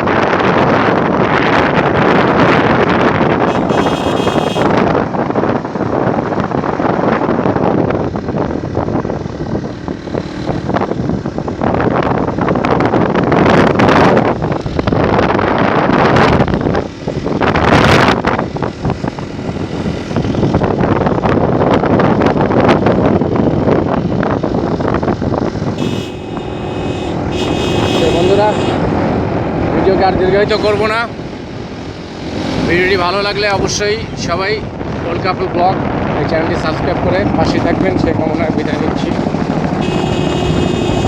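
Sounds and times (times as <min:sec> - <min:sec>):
road and engine noise: 0:00.0 - 0:41.0
wind rushing on microphone: 0:00.0 - 0:41.0
high-pitched tone: 0:03.5 - 0:04.7, 0:25.7 - 0:28.9.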